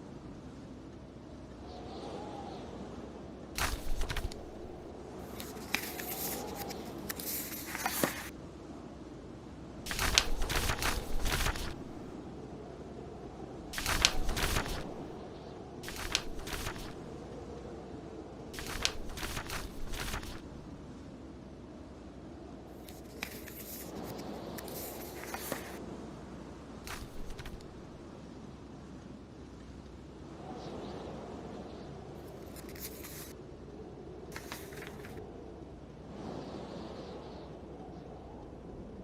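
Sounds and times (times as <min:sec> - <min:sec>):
blizzard wind howling: 0:00.2 - 0:09.9, 0:11.7 - 0:13.8, 0:16.9 - 0:18.6, 0:35.1 - 0:39.0
book pages turning: 0:03.6 - 0:08.3, 0:09.9 - 0:12.1, 0:13.8 - 0:15.2, 0:15.8 - 0:17.1, 0:18.6 - 0:20.6, 0:22.8 - 0:25.8, 0:26.9 - 0:28.0, 0:32.4 - 0:33.3, 0:34.4 - 0:35.2.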